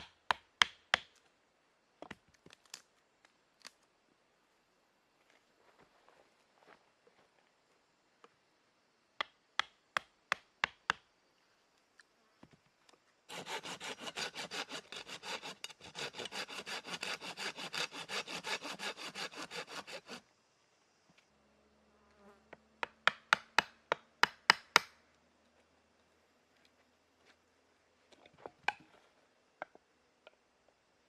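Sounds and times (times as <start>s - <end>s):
hand saw cutting wood: 13.3s - 20.2s.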